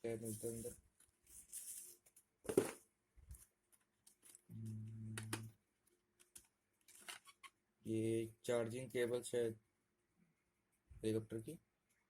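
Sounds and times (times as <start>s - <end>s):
person humming: 4.5s - 5.5s.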